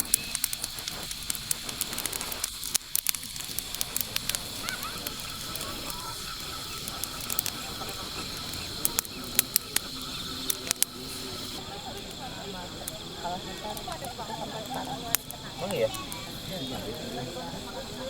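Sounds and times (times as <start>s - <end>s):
sharp crackles and clicks: 0.0s - 16.4s
steady hiss: 0.0s - 18.0s.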